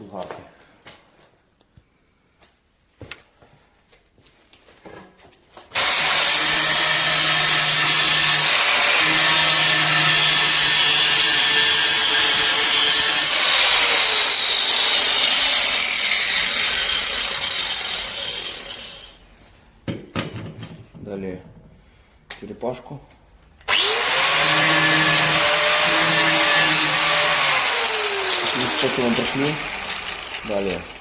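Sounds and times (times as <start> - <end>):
angle grinder cutting tile: 5.7 - 19.2, 23.7 - 31.0.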